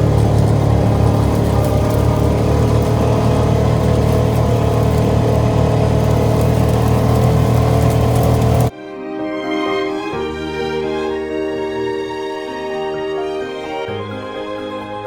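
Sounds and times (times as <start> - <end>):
atv engine running: 0.0 - 8.7.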